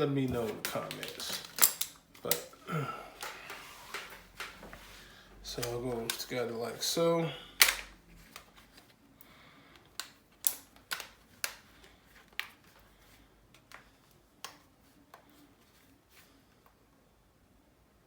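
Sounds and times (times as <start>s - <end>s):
plastic clicks and taps: 9.8s - 11.6s.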